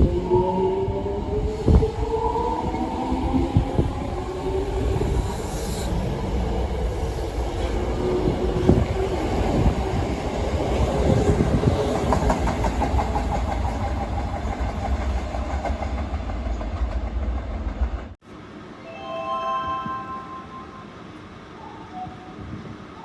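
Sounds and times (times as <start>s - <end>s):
train wheels rumbling and clacking: 0.9s - 18.2s
electronic chime: 18.8s - 22.4s.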